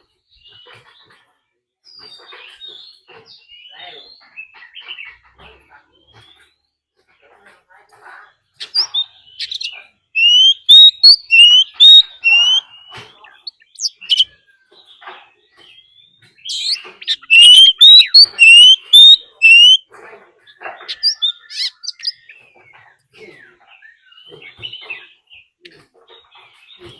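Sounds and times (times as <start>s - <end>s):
bird chirps and clicks: 7.9s - 26.9s
songbird singing rising notes: 8.7s - 14.4s, 16.2s - 19.8s, 20.8s - 25.6s.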